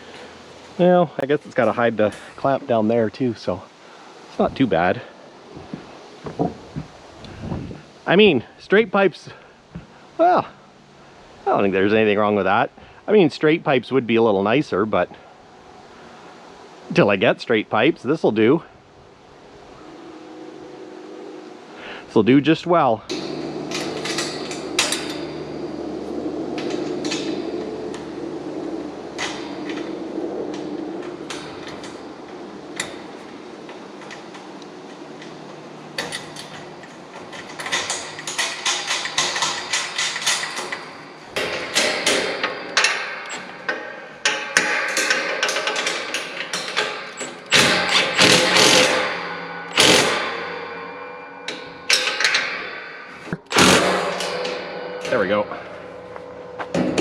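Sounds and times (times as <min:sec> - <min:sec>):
steady hum: 0:00.0 - 0:57.0
metal clanking from hand tools: 0:23.1 - 0:25.8, 0:26.6 - 0:28.2, 0:36.0 - 0:56.0.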